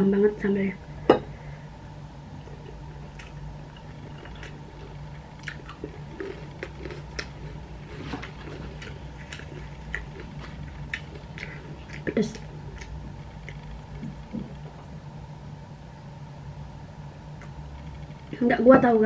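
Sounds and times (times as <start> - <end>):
steady low hum: 0.0 - 19.0
person chewing food: 2.4 - 14.9.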